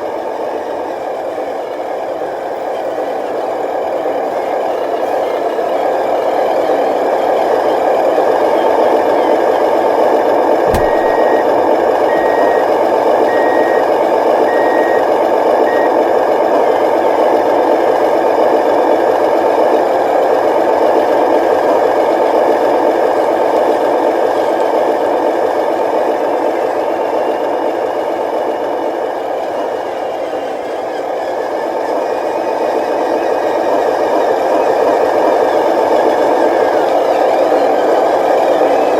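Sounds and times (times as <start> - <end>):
reversing beeper beeps: 10.7 - 16.0.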